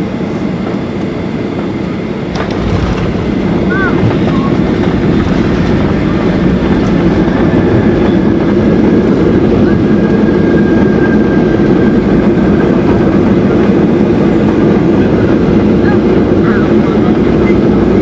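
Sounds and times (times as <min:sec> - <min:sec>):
airplane cabin rumble: 0:00.0 - 0:18.0.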